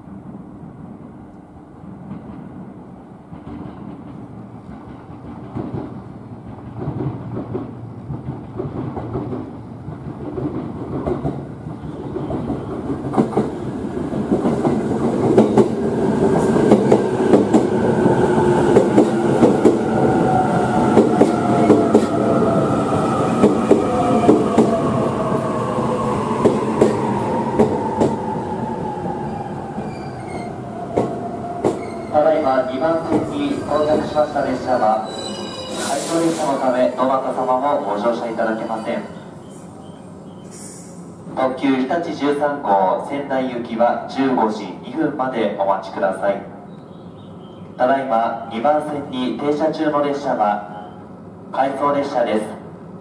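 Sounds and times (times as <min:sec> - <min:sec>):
train rumble: 0:00.0 - 0:40.4
train brake whine: 0:35.0 - 0:41.2.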